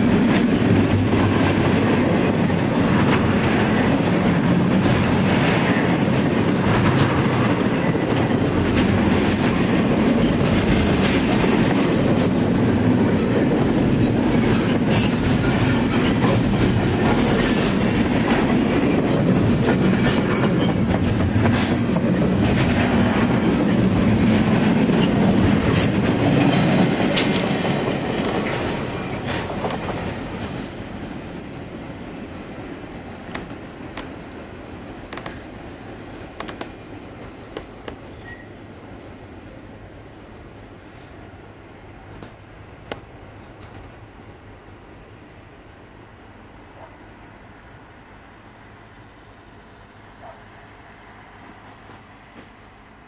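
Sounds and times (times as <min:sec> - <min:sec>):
wheels clicking on rails: 0:00.0 - 0:30.8, 0:36.2 - 0:38.4
freight train rumbling: 0:00.0 - 0:53.0.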